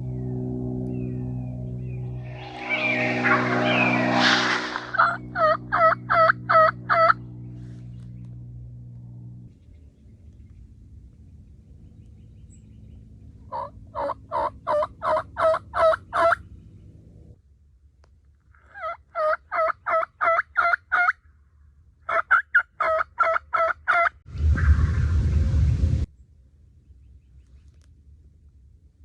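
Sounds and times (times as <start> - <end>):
turkey yelps: 22.1 - 24.8.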